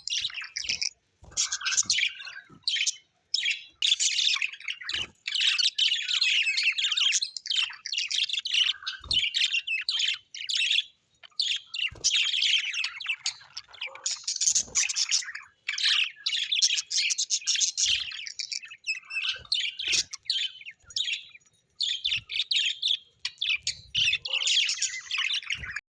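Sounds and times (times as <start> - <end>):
small parrots chirping: 0.0 - 25.8.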